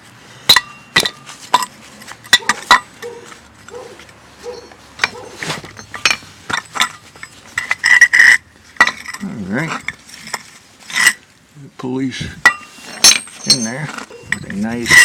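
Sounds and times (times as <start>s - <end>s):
metallic clinks and knocks: 0.5s - 11.2s, 12.4s - 15.0s.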